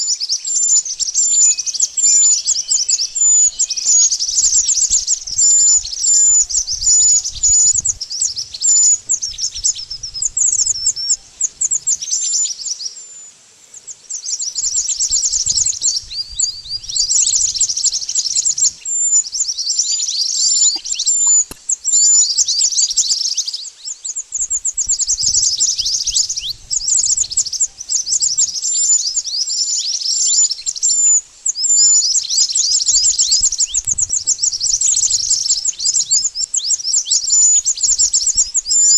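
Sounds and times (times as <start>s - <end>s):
high-pitched bird twittering: 0.0s - 12.8s, 14.1s - 38.9s.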